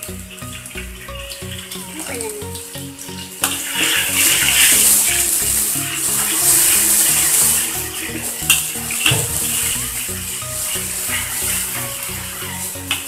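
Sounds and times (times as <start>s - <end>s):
background music: 0.0s - 13.0s
paste sizzling in hot oil: 2.8s - 13.0s.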